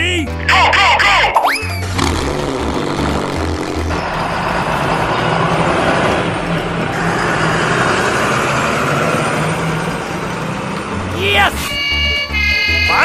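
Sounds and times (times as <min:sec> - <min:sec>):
vehicle engine running: 0:01.7 - 0:11.5.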